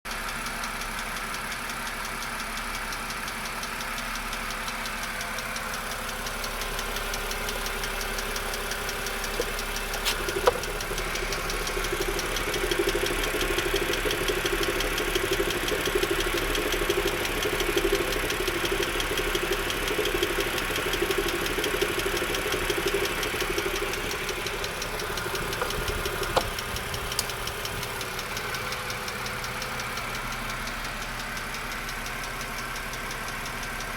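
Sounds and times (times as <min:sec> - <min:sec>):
car engine idling: 0:00.1 - 0:33.9
fast even ticking: 0:00.3 - 0:33.9
click: 0:09.2 - 0:11.7, 0:24.4 - 0:31.0.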